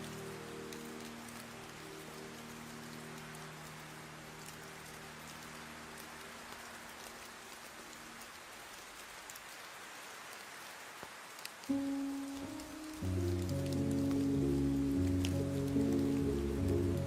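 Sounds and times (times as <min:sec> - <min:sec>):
piano chord: 0:00.0 - 0:04.5, 0:11.7 - 0:17.0
steady rain falling: 0:00.0 - 0:17.0.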